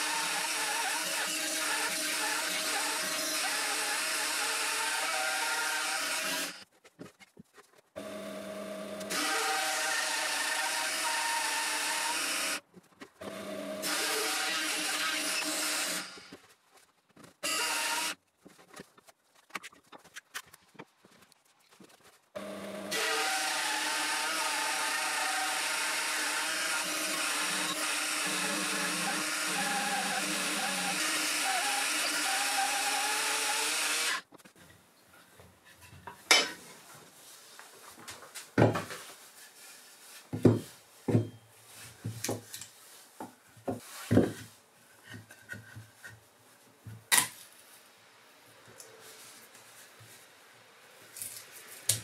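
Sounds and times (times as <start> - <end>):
band saw cutting wood: 0.0 - 6.6, 8.0 - 12.6, 13.2 - 16.3, 22.4 - 34.2.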